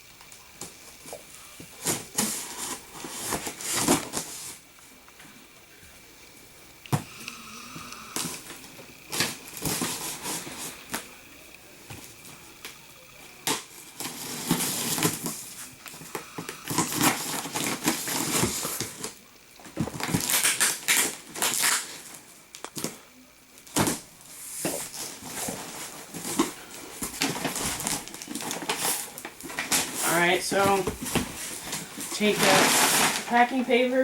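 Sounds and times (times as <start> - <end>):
packing paper crinkling: 12.0 - 23.0, 24.7 - 33.6.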